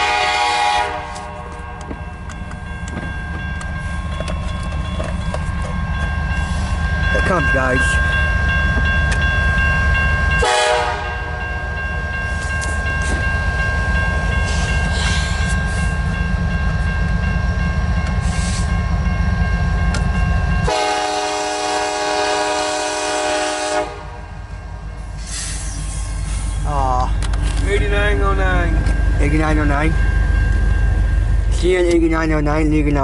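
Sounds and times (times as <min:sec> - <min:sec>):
train air horn blasts: 0:00.0 - 0:01.6, 0:10.4 - 0:11.2, 0:20.7 - 0:24.3
train rumble: 0:00.0 - 0:33.0.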